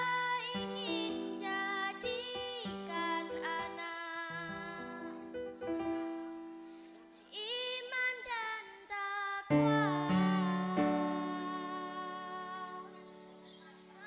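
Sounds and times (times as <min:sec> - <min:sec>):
children's choir singing: 0:09.5 - 0:14.0.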